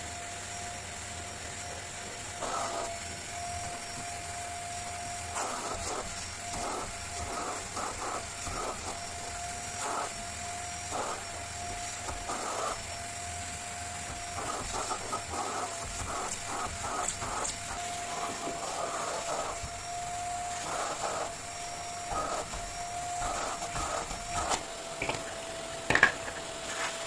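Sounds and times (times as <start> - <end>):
small machine whining: 0.0 - 27.0.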